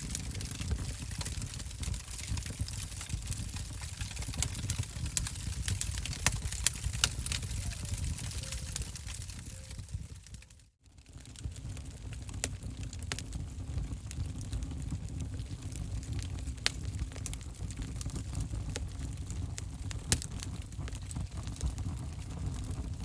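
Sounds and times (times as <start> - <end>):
fire flames rumbling: 0.0 - 23.0
wood fire crackling and popping: 0.0 - 23.0.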